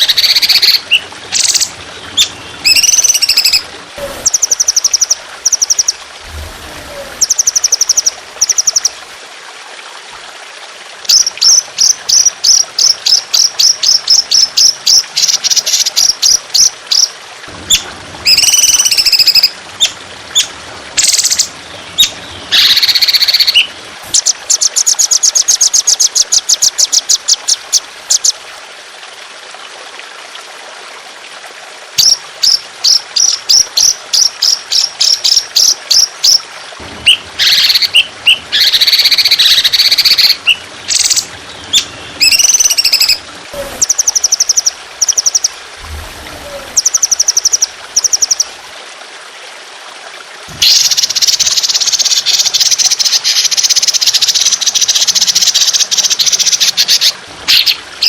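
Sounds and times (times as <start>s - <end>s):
songbird chirps and trills: 0.0s - 6.0s, 6.8s - 9.0s, 17.7s - 28.4s, 32.0s - 48.6s, 50.5s - 57.9s
water trickling: 0.0s - 58.0s.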